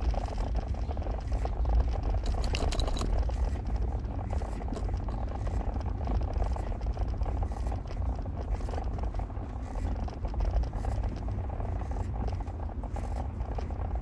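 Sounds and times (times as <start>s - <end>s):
car engine and tyre rumble: 0.0s - 14.0s
light rattling clicks: 1.9s - 3.4s.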